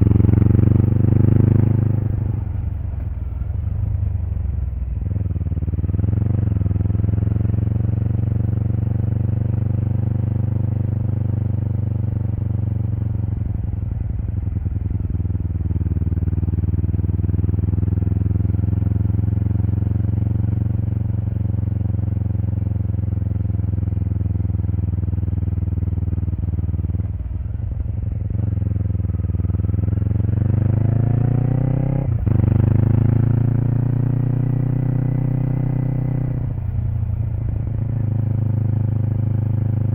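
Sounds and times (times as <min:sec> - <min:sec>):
motorcycle engine revving: 0:00.0 - 0:03.4, 0:05.0 - 0:39.9.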